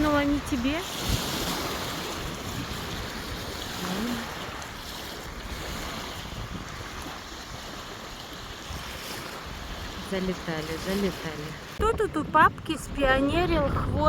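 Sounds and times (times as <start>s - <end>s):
lake waves lapping: 0.0s - 14.0s
wind buffeting microphone: 0.0s - 14.0s.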